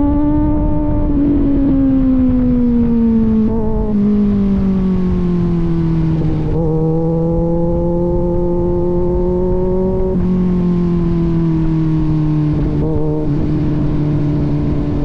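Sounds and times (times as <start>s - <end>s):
motorcycle engine exhaust note: 0.0s - 15.0s.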